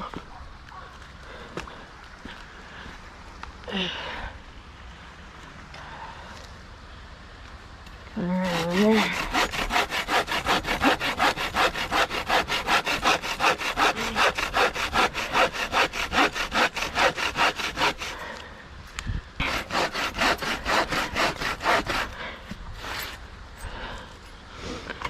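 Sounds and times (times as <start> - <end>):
hand saw cutting log: 8.2 - 18.3, 19.4 - 23.2.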